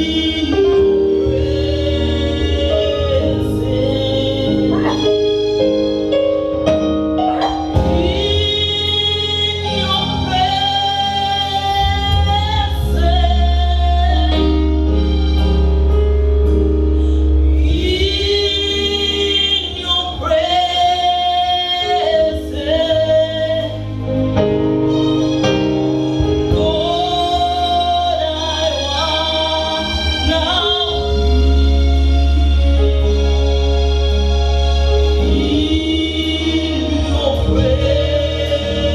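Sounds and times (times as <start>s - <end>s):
people singing together: 0.0s - 5.1s, 7.8s - 14.3s, 35.2s - 38.9s
long held bass notes: 0.0s - 38.9s.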